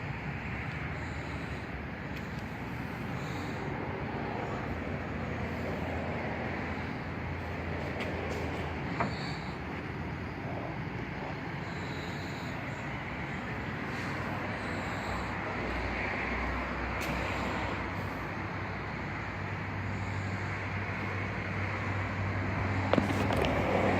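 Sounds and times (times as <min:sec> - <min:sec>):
car road and engine noise: 0:00.0 - 0:23.9.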